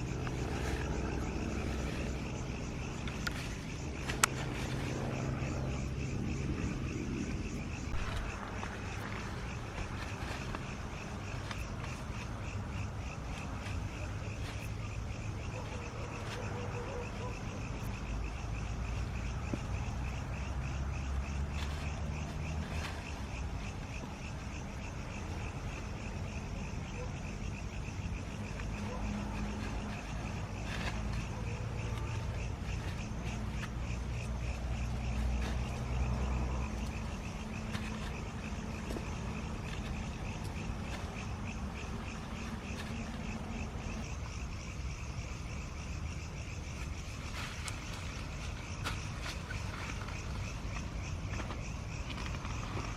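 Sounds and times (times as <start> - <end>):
steady low rumble: 0.0 - 15.5
frogs or insects calling: 0.0 - 52.9
low outdoor rumble: 0.0 - 52.9.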